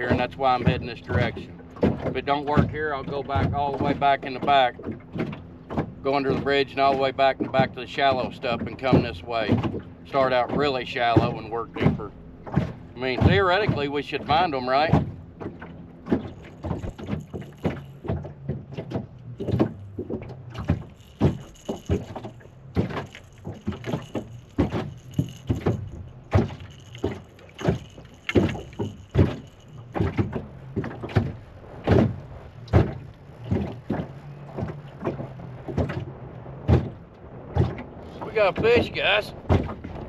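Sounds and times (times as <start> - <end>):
water slapping boat hull: 0.0 - 40.0
electric motor humming: 19.2 - 35.3.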